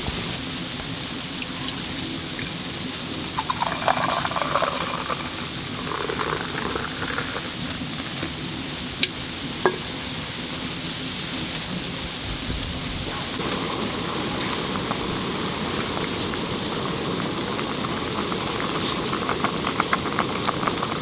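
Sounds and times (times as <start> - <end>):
heavy snow falling: 13.1 - 21.0.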